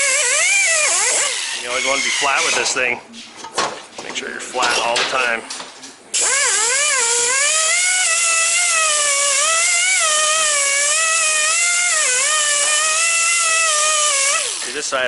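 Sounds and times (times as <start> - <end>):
power tool buffing wheel whining: 6.2 - 14.7.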